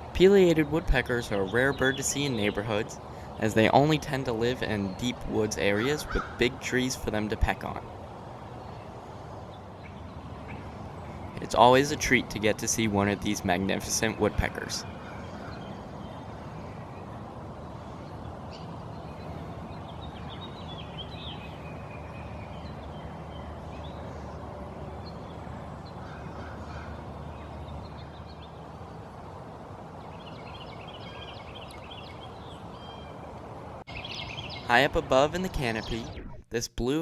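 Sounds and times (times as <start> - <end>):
bird chirps and calls: 0.0 - 7.9, 33.9 - 36.4
steady background hiss: 0.0 - 37.0.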